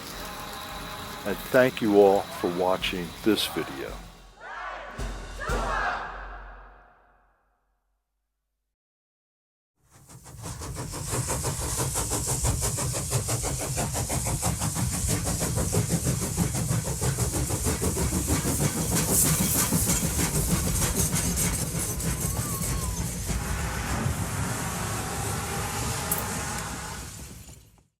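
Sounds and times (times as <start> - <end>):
model train wheels clattering: 10.2 - 23.3.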